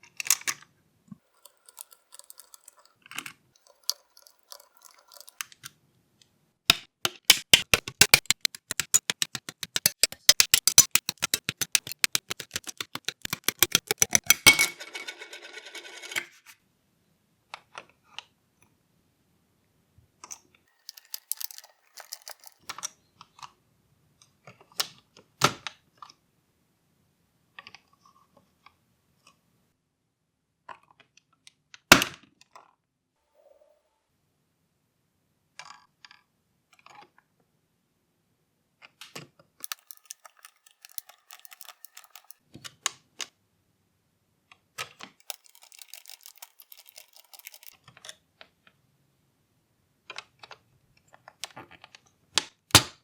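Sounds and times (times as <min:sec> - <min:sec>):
small plastic parts clicking: 0:01.3 - 0:05.7, 0:06.7 - 0:14.7, 0:20.8 - 0:22.9, 0:39.6 - 0:42.4, 0:44.9 - 0:48.0.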